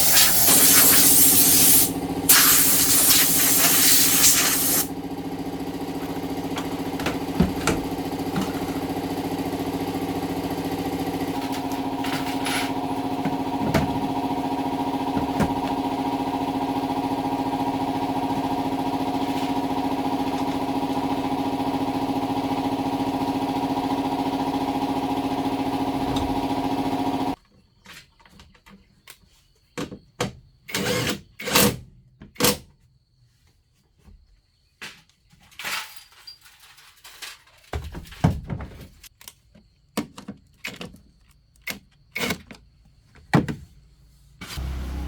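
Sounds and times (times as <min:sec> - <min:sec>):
spraying hiss: 0:00.0 - 0:04.9
car engine idling: 0:44.6 - 0:45.0.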